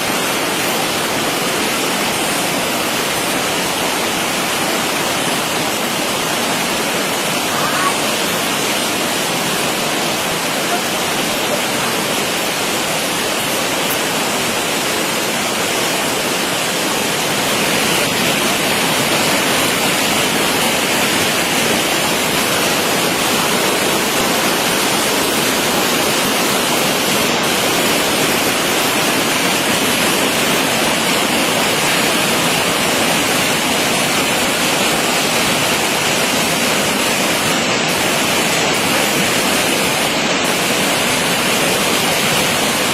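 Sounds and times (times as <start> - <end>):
storm water rushing: 0.0 - 42.9.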